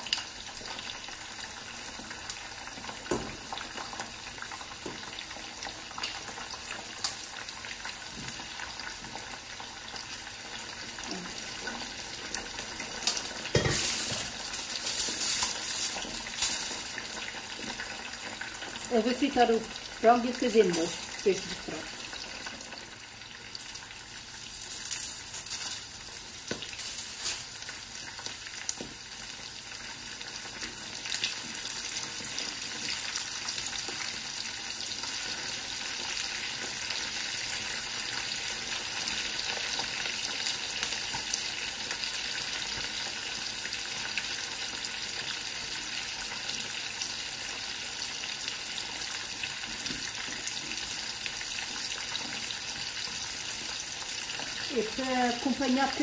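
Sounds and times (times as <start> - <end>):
chicken sizzling in oil: 0.0 - 56.0
oil crackles: 10.8 - 19.8, 20.4 - 22.8, 23.7 - 29.1.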